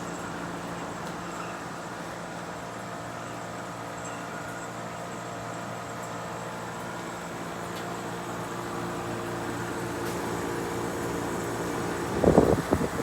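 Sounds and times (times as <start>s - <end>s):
air conditioner humming: 7.4s - 13.0s.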